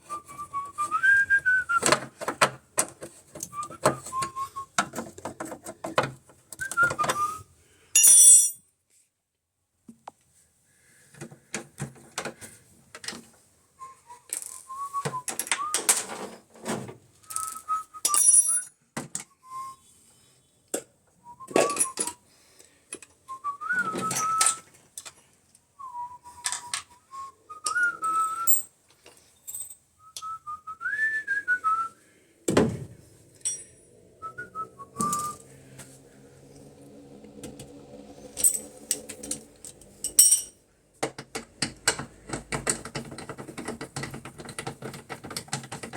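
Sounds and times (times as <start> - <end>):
person whistling a tune: 0.0 - 2.0, 3.5 - 4.8, 6.6 - 7.5, 13.8 - 15.8, 17.3 - 18.2, 19.3 - 20.0, 21.2 - 22.2, 23.3 - 24.7, 25.8 - 28.6, 30.0 - 32.0, 34.2 - 35.6
tools and parts clattering: 8.0 - 8.6, 14.3 - 19.2, 21.5 - 22.2, 23.7 - 25.2, 27.7 - 29.9, 32.5 - 34.1, 38.3 - 45.9
low steady hum: 32.1 - 43.4.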